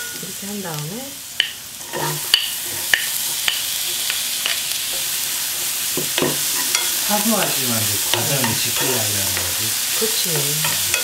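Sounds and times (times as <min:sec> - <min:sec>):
garlic and onion sizzling in oil: 0:00.0 - 0:11.0
wooden spoon clicking on pan: 0:01.4 - 0:01.6.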